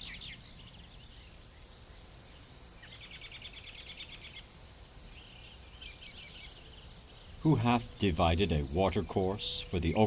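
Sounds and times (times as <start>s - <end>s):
bird trilling chirps: 5.2s - 10.0s.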